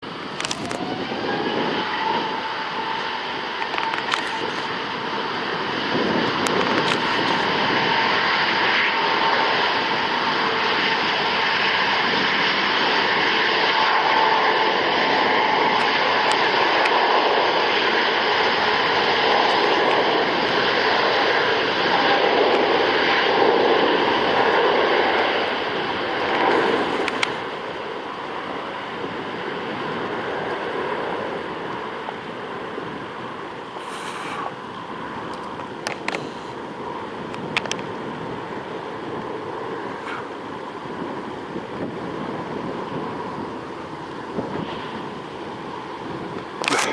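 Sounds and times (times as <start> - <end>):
jet engine roar: 0.0 - 46.9
jet engine whine: 0.0 - 46.9.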